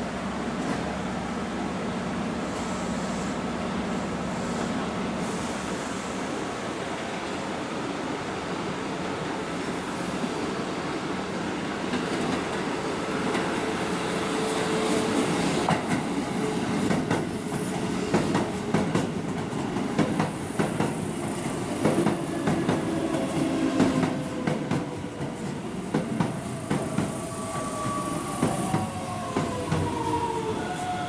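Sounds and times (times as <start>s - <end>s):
train wheel squeal: 26.4s - 31.0s.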